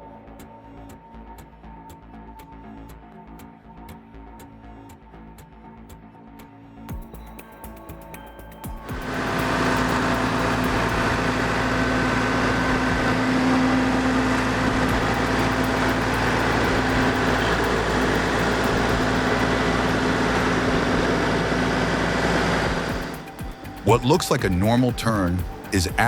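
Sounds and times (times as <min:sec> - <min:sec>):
heavy vehicle engine drone: 0:08.9 - 0:26.0.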